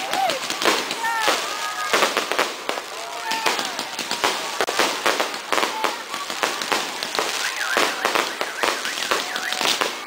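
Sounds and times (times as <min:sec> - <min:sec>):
fireworks bangs and crackling pops: 0:00.0 - 0:10.0
people's voices: 0:00.0 - 0:10.0.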